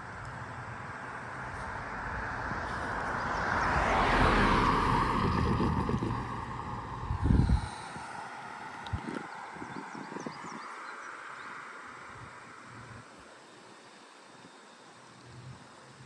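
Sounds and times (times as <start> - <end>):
vehicle passing by: 0.4 - 10.5
wind gust on microphone: 1.6 - 10.7.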